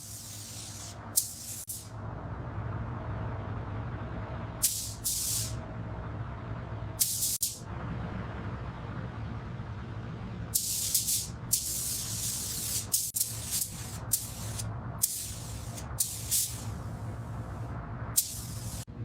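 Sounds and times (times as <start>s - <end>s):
compressed air hissing: 0.0s - 1.9s, 4.6s - 5.6s, 7.0s - 7.6s, 10.6s - 17.6s, 18.2s - 18.9s
steady low hum: 0.0s - 19.0s.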